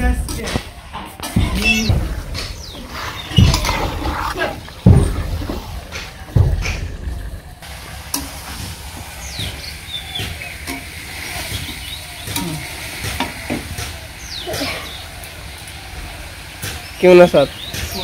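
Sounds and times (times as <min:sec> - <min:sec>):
chicken sizzling in oil: 0:07.6 - 0:17.9.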